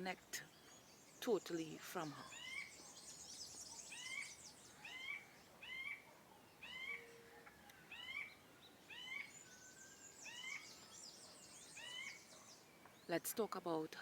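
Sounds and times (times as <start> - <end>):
bird calling: 0.0 - 13.0
faint high-pitched chirping: 0.0 - 14.0.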